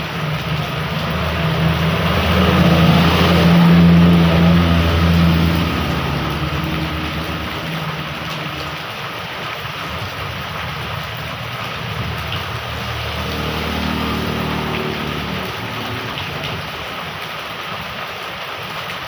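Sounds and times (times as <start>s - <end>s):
vehicle engine humming: 0.0s - 17.4s
heavy rain falling: 0.0s - 19.0s.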